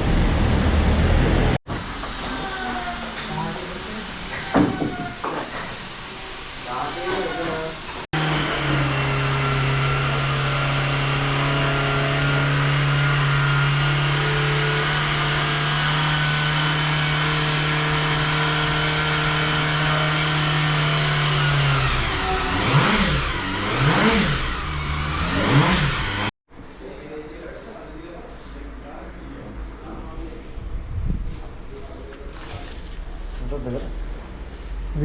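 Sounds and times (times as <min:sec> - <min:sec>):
motorcycle engine revving: 0:08.2 - 0:26.3.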